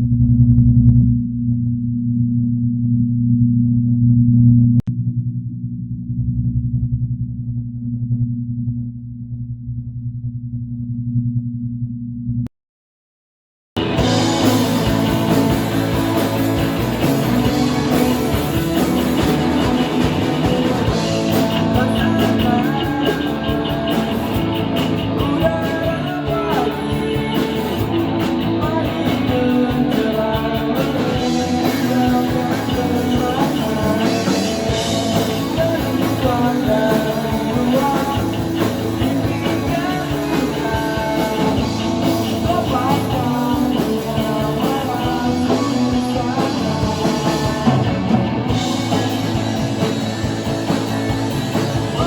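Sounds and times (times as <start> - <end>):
drum kit: 13.8 - 52.0
electric guitar: 13.8 - 52.0
person singing: 16.6 - 50.1, 50.7 - 52.0.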